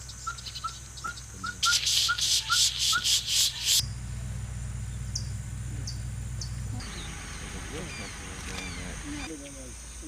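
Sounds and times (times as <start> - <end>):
steady low hum: 0.0 - 10.0
pulsing insect buzz: 1.3 - 7.8
high falling bird chips: 1.6 - 3.8.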